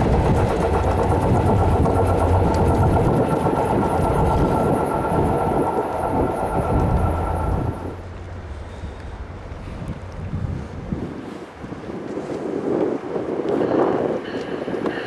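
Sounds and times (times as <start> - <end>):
thin steady whine: 0.0 - 11.6
train wheels rumbling on rails: 0.0 - 15.0.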